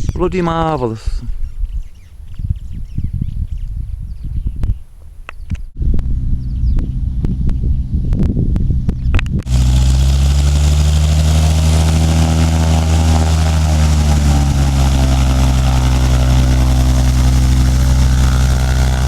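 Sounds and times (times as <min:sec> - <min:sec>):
airplane piston engine running: 0:09.5 - 0:19.0.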